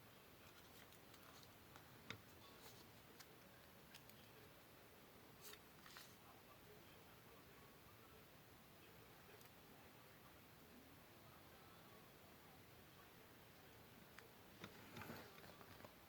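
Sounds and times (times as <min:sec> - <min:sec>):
paper rustling: 0:05.4 - 0:06.2.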